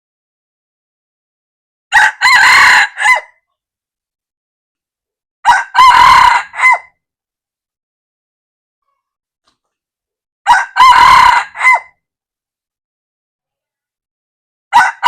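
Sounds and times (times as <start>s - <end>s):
rooster crowing: 1.9s - 3.4s, 5.4s - 6.9s, 10.5s - 12.0s, 14.7s - 15.0s.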